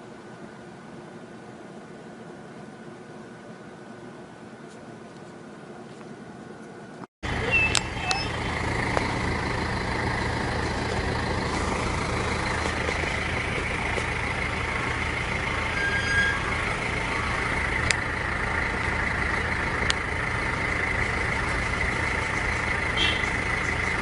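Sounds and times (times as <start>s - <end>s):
mechanical hum with whine: 0.0s - 9.2s
high squeak: 7.4s - 8.4s, 15.6s - 17.7s
sharp clicks: 7.6s - 9.2s, 17.8s - 18.1s.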